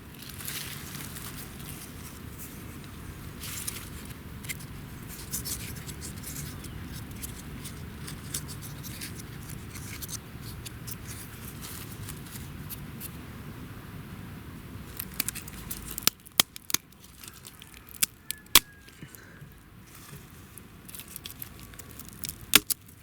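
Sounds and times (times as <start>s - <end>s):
wood scraping and crackling: 14.9s - 19.2s, 19.8s - 23.0s.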